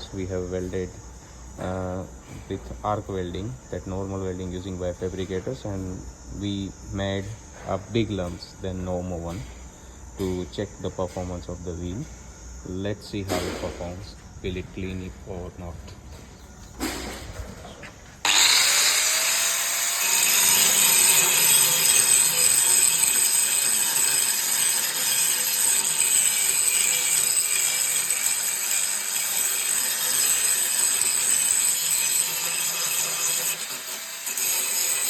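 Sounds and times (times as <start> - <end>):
grinder grinding metal: 18.2 - 35.0
grinder motor whine: 18.2 - 35.0.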